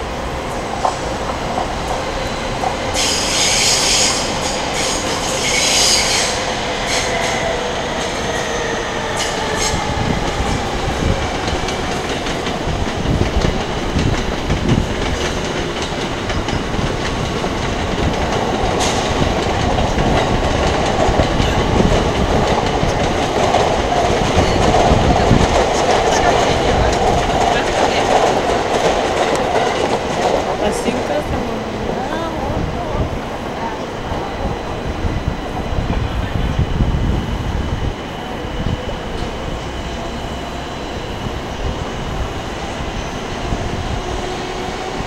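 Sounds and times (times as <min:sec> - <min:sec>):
train rumble: 0:00.0 - 0:45.0
train wheels squealing: 0:02.9 - 0:10.8.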